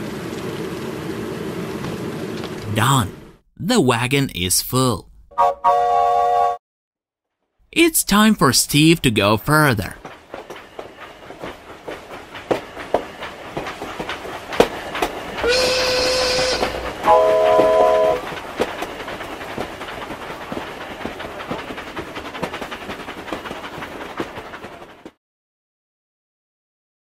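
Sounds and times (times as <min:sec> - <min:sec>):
train horn chord: 0:05.3 - 0:06.6, 0:15.4 - 0:18.2
train whistle: 0:05.3 - 0:06.6, 0:15.4 - 0:18.3
train wheels clattering: 0:08.7 - 0:25.2.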